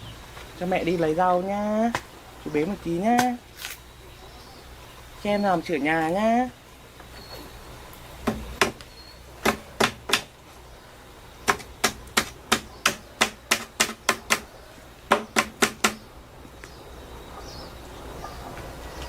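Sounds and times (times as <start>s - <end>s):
hand tool striking: 11.5s - 14.4s.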